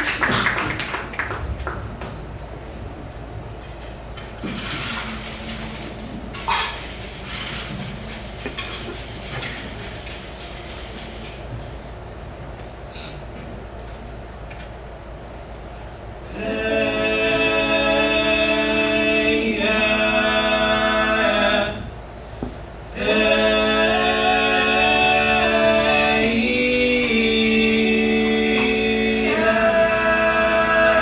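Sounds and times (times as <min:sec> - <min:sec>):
men singing a cappella chords: 0:16.3 - 0:22.0, 0:22.9 - 0:31.0.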